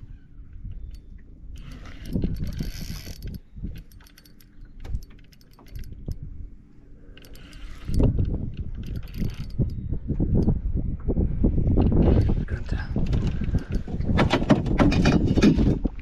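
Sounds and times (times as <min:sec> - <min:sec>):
fishing reel whirring and clicking: 0:00.6 - 0:06.3, 0:06.9 - 0:10.6, 0:13.1 - 0:13.9.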